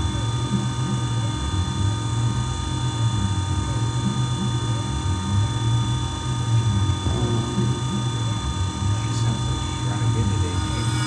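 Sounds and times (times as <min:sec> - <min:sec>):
milling machine spindle whine: 0:05.8 - 0:11.0
axis motors sweeping in pitch: 0:10.2 - 0:11.0.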